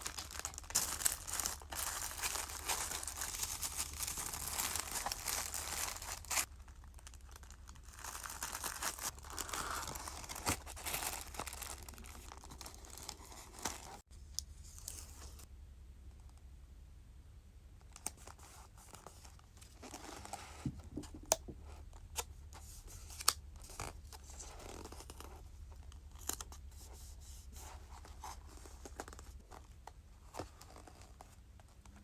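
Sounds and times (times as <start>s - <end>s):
packaging material rustling: 0.0s - 14.1s.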